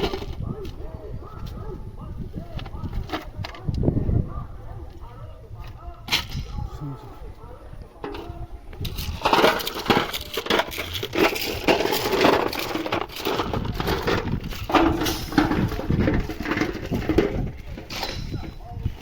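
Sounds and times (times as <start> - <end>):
ballast stones crunching and clinking: 8.0 - 19.0.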